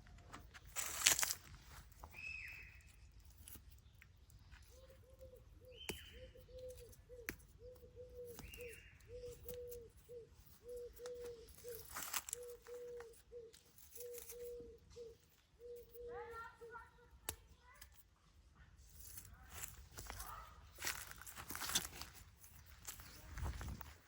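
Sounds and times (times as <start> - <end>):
high bird chirps: 2.0 - 3.1, 4.7 - 17.1.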